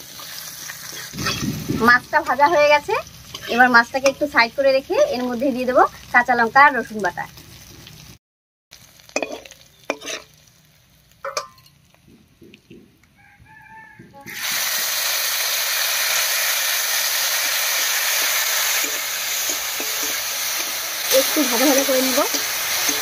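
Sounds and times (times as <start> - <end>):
paste sizzling in hot oil: 0.0 - 11.9, 14.3 - 23.0
metal spatula scraping a pan: 0.2 - 1.9, 3.2 - 4.2, 9.2 - 10.4, 18.1 - 23.0.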